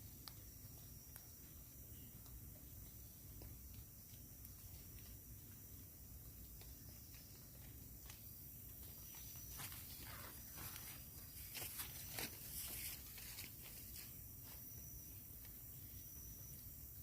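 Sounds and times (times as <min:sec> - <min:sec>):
irregular rustling: 0:08.8 - 0:14.7.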